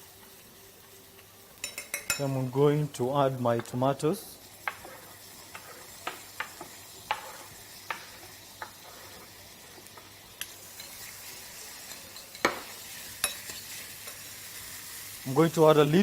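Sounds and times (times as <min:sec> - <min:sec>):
vegetables sizzling in oil: 0:00.0 - 0:16.0
spoon knocking against pan: 0:04.6 - 0:04.9, 0:05.5 - 0:08.8.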